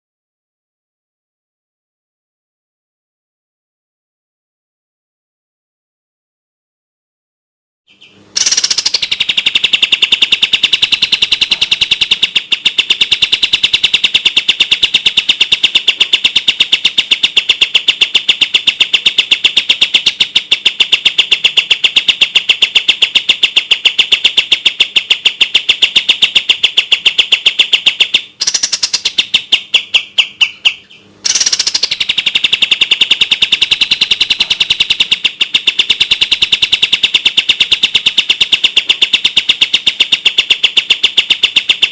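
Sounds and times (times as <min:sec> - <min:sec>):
songbird rattling song: 0:07.9 - 0:41.9.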